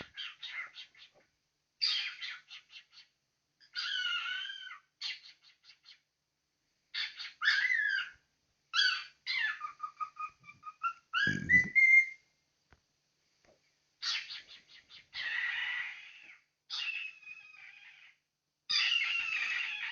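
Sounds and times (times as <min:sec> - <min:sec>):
cockatiel chattering and whistling: 0:00.0 - 0:01.2, 0:01.8 - 0:06.0, 0:06.9 - 0:08.2, 0:08.8 - 0:12.2, 0:14.0 - 0:18.1, 0:18.7 - 0:19.9.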